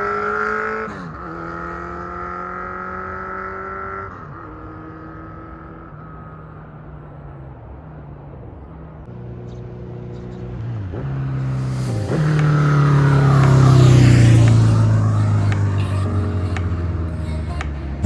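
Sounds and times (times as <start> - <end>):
motorcycle engine upshifting: 9.2 - 18.0.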